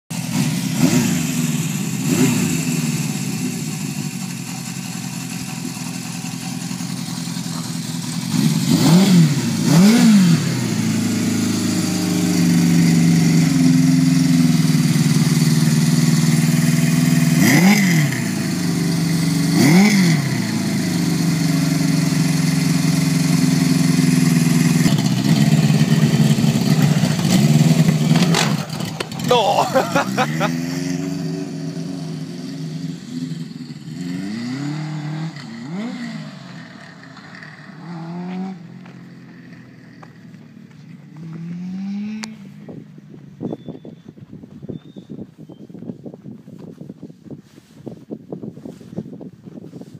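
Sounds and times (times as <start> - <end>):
motorcycle engine idling: 0.2 - 9.9, 10.5 - 33.9, 38.7 - 41.3
motorcycle throttle blips: 34.8 - 49.8.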